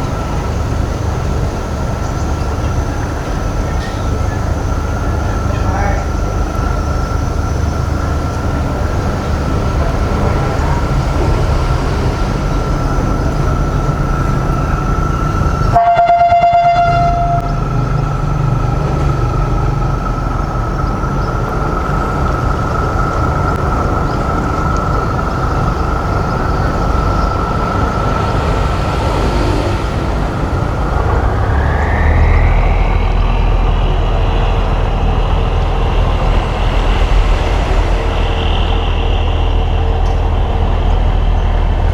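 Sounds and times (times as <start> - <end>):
boat engine rumbling: 0.0 - 41.9
horn: 15.8 - 17.7.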